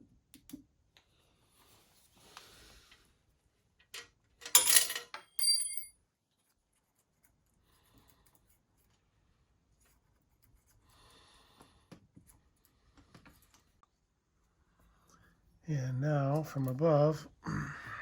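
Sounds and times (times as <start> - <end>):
metal parts clattering: 4.0 - 5.9
metallic ring: 4.6 - 5.9.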